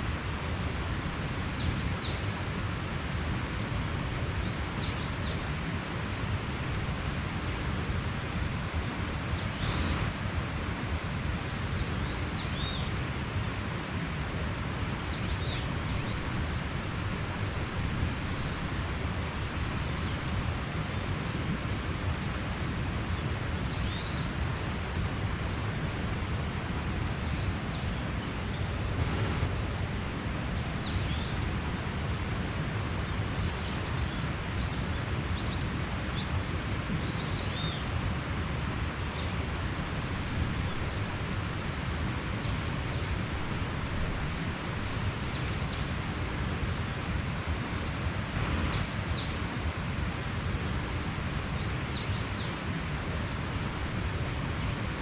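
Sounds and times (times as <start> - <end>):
mountain stream rushing: 0.0 - 55.0
small birds chirping: 23.2 - 29.5, 30.2 - 31.6, 44.2 - 49.6, 50.3 - 53.5.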